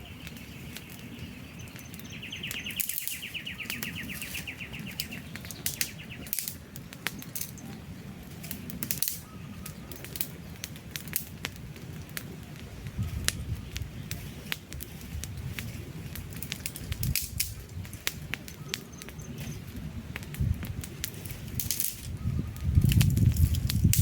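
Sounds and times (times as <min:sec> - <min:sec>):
wood fire crackling: 0:00.0 - 0:24.0
bird trilling: 0:01.5 - 0:06.3.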